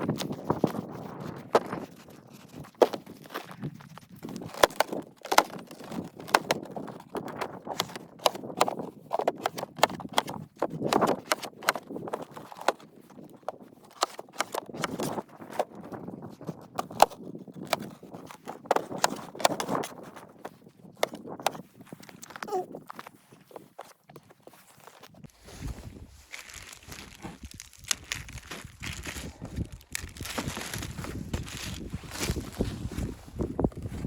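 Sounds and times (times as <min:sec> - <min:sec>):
footsteps crunching in snow: 0:19.7 - 0:34.0.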